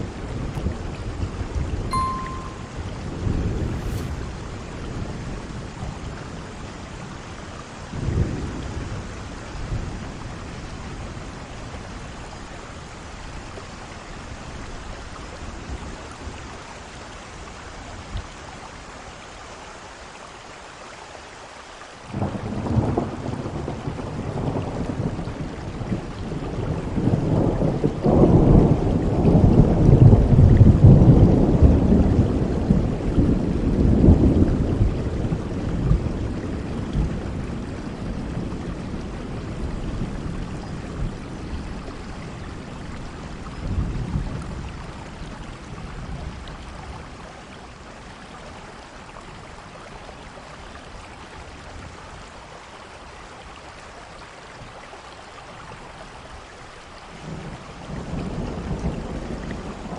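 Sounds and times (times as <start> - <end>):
heavy rain: 0.0 - 59.9
thunderclap: 2.9 - 5.3.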